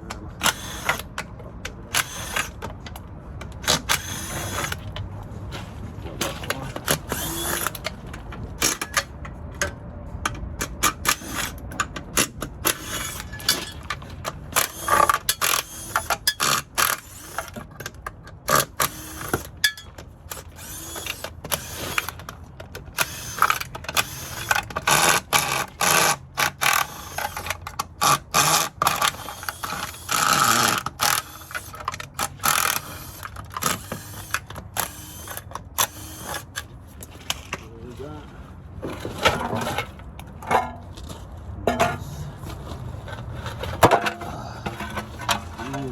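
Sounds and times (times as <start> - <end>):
hand tools clanking on metal: 41.7 - 42.3.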